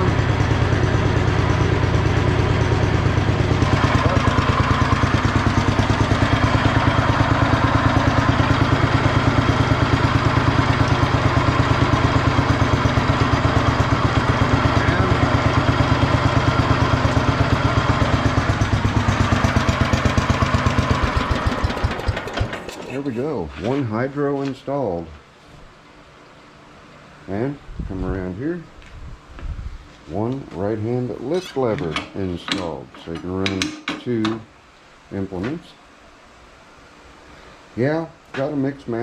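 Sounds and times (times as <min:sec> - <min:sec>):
garden tractor engine running: 0:00.0 - 0:23.3.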